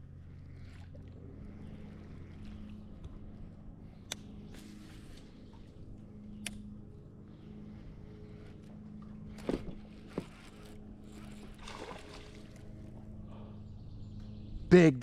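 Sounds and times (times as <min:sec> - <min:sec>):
faint water and handling noise: 0:00.0 - 0:13.2
steady low hum: 0:00.0 - 0:15.0
sharp clicks on hull: 0:09.0 - 0:10.8.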